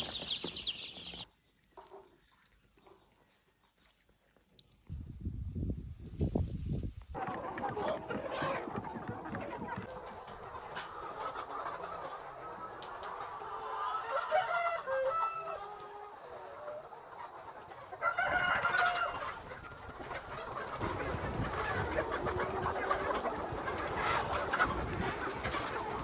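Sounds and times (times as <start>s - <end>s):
chickens clucking: 0.0s - 2.1s, 7.2s - 26.0s
rooster crowing: 14.0s - 15.6s, 18.0s - 19.2s.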